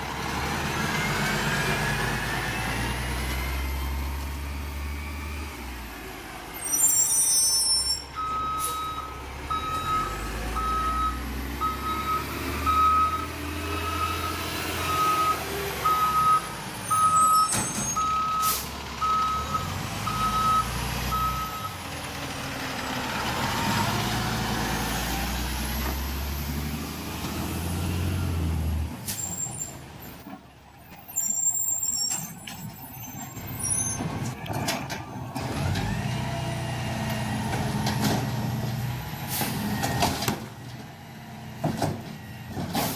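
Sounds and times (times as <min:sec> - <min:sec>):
air brakes hissing: 0:17.0 - 0:18.8, 0:29.0 - 0:29.8.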